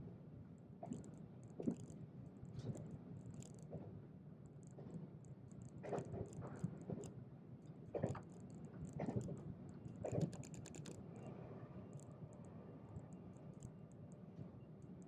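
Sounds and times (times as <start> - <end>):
light rattling ticks: 2.6 - 3.8, 4.5 - 11.0, 11.9 - 15.0.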